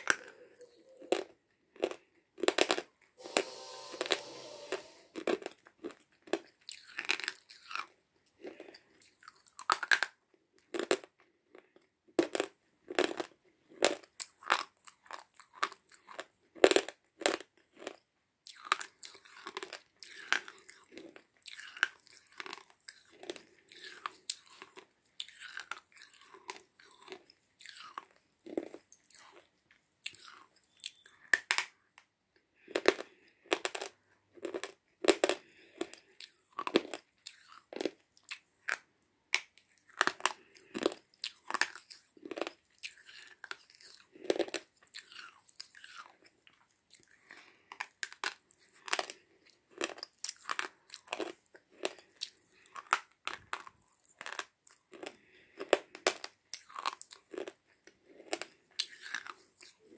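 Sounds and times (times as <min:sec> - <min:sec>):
crunchy chewing bites: 0:12.2 - 0:31.8, 0:32.6 - 0:59.9.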